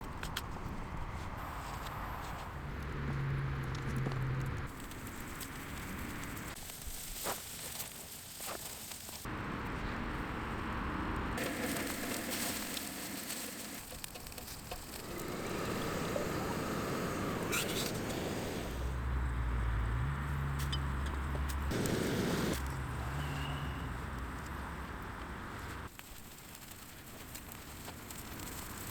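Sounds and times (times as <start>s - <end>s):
campfire crackling and popping: 10.7s - 18.9s, 21.5s - 23.0s, 24.1s - 28.9s.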